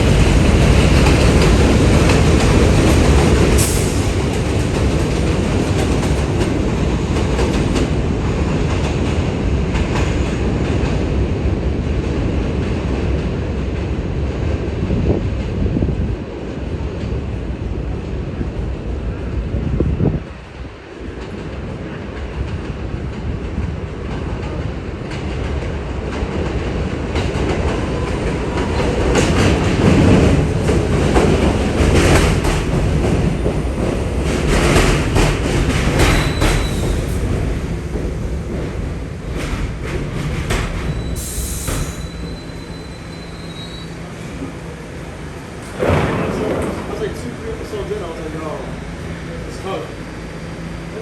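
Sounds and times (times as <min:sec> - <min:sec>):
wheels clacking over rail joints: 0:00.0 - 0:11.2, 0:21.0 - 0:48.2
subway train rumbling: 0:00.0 - 0:51.0
high wheel squeal: 0:36.0 - 0:37.2, 0:40.8 - 0:44.2.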